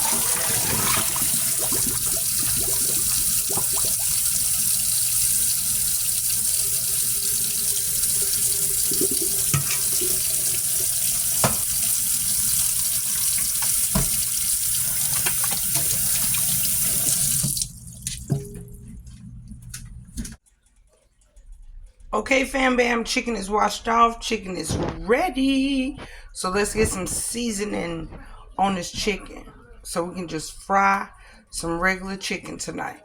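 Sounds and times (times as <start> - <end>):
tap water running into sink: 0.0 - 18.9.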